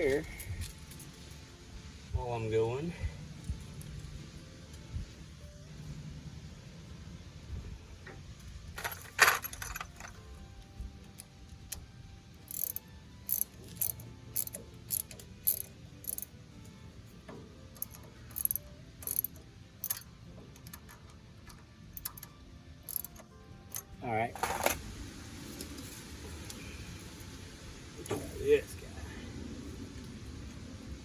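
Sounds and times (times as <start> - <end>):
sharp metal clicks: 12.5 - 16.3, 17.7 - 23.9.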